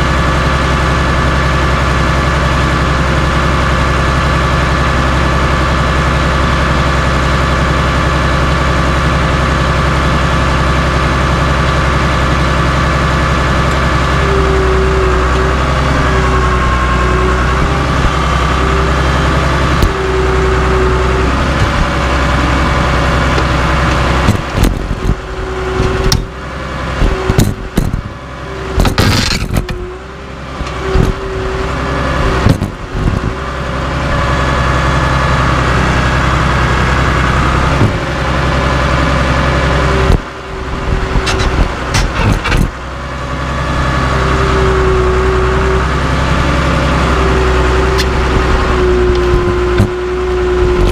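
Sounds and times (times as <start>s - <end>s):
bulldozer diesel engine running: 0.0s - 50.9s
steady whine: 0.0s - 50.9s
metal clanks and bangs: 28.7s - 29.8s, 41.2s - 42.8s.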